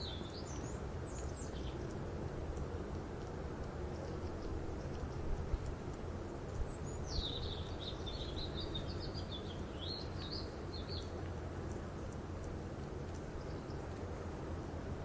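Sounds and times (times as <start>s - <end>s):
songbird singing high chirps: 0.0s - 2.0s, 3.9s - 14.8s
low background noise: 0.0s - 15.0s.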